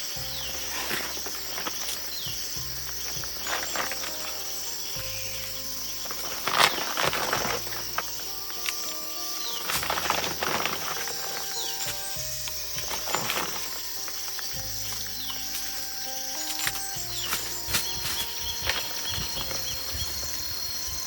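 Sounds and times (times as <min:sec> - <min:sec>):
high-pitched insect chorus: 0:00.0 - 0:21.0
rustling and clicking handling noises: 0:00.0 - 0:21.0
soft background music: 0:00.0 - 0:21.0.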